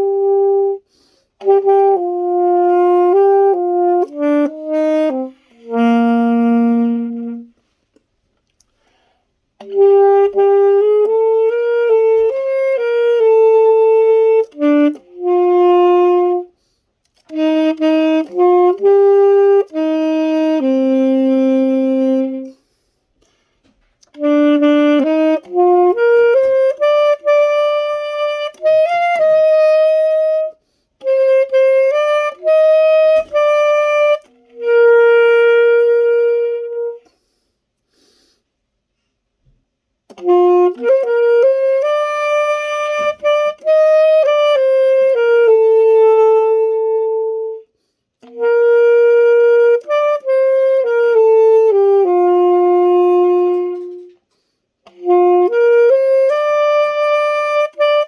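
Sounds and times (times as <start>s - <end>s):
solo saxophone ballad: 0.0s - 58.0s
player breathing: 0.9s - 1.4s, 37.1s - 39.2s.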